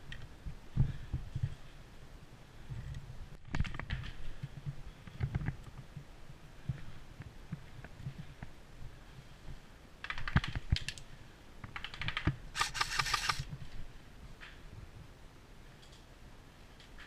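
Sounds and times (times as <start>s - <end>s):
airsoft gun firing bursts: 12.6s - 13.4s.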